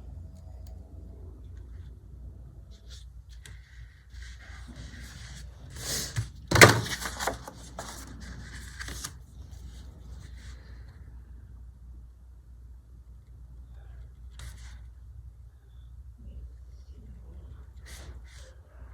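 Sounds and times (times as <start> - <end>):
paper sheets rustling: 3.6 - 10.3.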